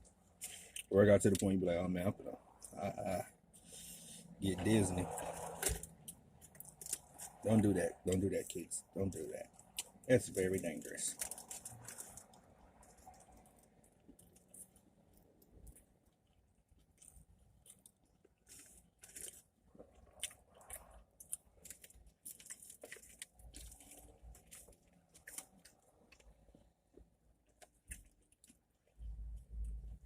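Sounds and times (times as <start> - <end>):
person chewing food: 5.0 - 7.6, 9.5 - 10.0, 11.2 - 30.0.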